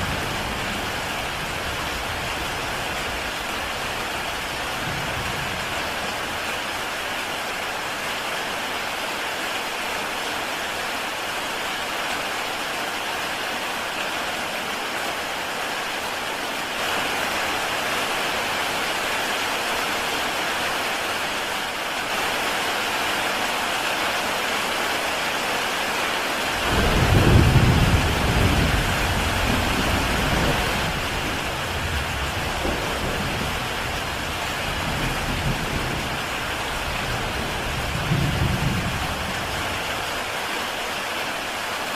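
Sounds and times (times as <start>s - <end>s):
thunder rumbling: 0.0s - 6.4s, 26.6s - 39.8s
heavy rain on a tile roof: 0.0s - 41.9s.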